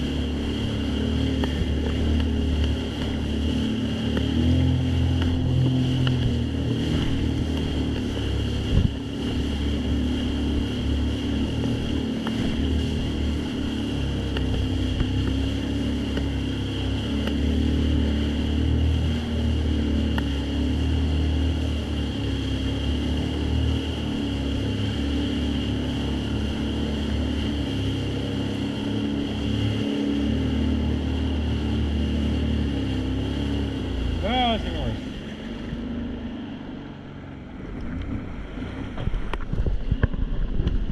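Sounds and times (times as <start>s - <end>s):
jet ski engine running: 0.0s - 40.9s
water noise: 0.0s - 40.9s
wind noise: 5.2s - 9.7s, 37.6s - 40.9s.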